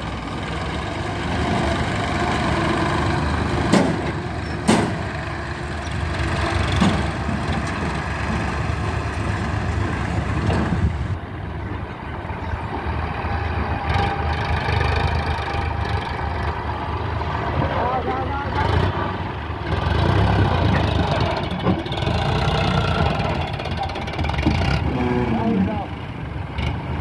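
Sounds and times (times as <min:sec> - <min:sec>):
tractor engine running: 0:00.0 - 0:27.0
sharp knocks: 0:03.6 - 0:05.1.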